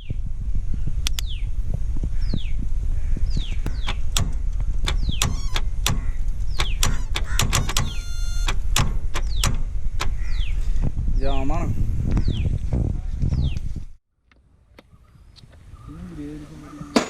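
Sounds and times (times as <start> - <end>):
birds chirping: 0.8 - 13.7, 14.8 - 17.0
engine starter clicking: 3.7 - 10.2.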